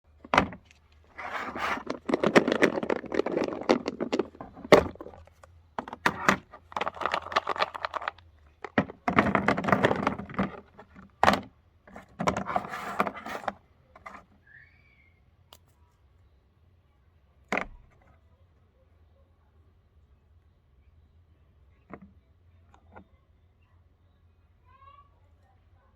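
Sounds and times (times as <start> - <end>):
grinder crunching cookies: 6.3 - 10.0.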